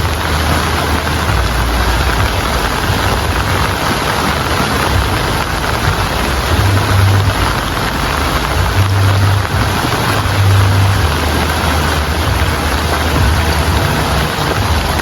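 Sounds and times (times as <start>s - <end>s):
low rumble: 0.0s - 15.0s
steady rain falling: 0.0s - 15.0s.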